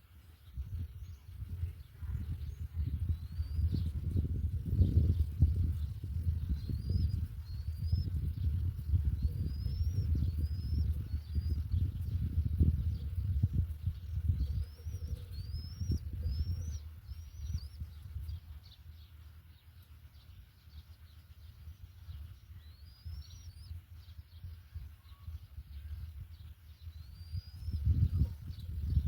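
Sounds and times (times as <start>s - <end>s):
bird chirping: 0.0s - 29.0s.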